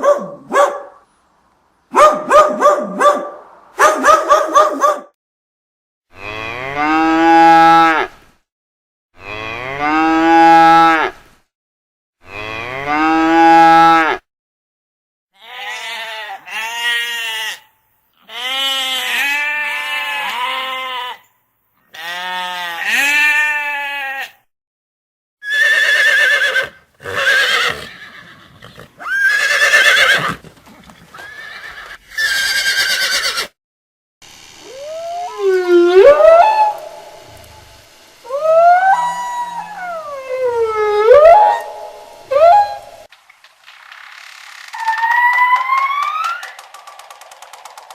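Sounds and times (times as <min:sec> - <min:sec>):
animal calls: 0:25.5 - 0:33.5.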